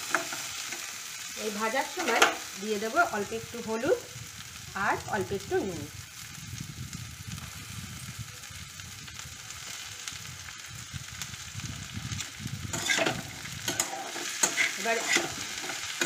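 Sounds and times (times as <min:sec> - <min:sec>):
food sizzling in oil: 0:00.0 - 0:16.0
spatula scraping a pan: 0:12.7 - 0:16.0.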